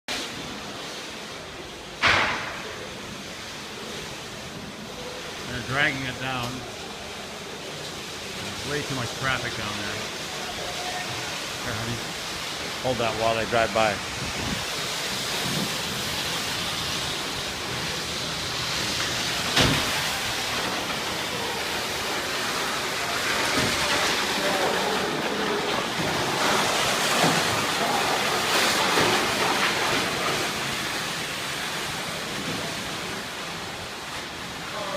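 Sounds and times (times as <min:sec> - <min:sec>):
sharp knock: 0:02.0 - 0:02.6
road traffic rushing: 0:04.7 - 0:32.2.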